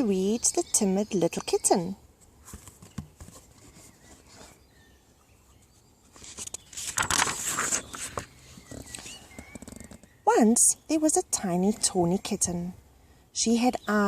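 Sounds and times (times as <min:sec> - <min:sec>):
paper pages rustling: 0:02.4 - 0:04.6, 0:06.1 - 0:10.1.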